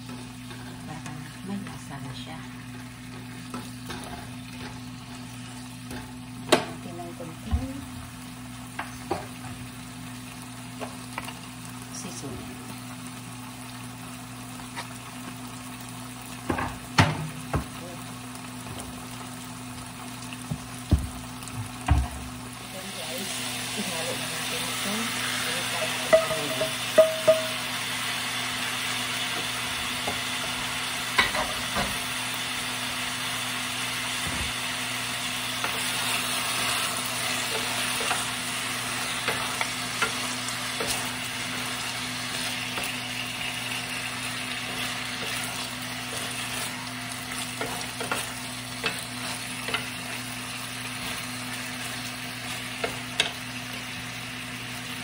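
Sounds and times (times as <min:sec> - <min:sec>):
food sizzling in frying pan: 0:00.0 - 0:55.0
wooden spatulas knocking pan: 0:26.1 - 0:27.7.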